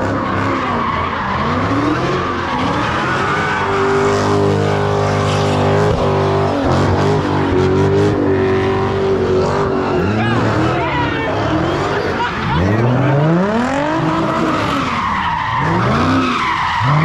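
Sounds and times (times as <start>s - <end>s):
car engine revving: 0.0s - 17.0s
tyres squealing: 8.2s - 17.0s.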